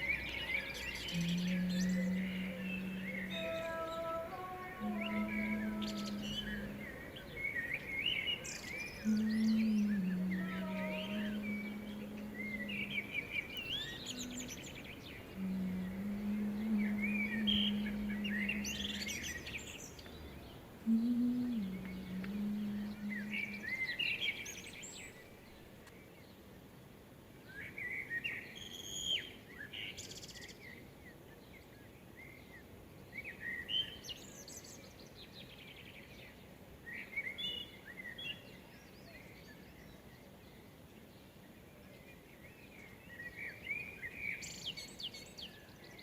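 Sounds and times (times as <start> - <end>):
songbirds singing: 0.0 - 26.4
steady background hiss: 0.0 - 46.0.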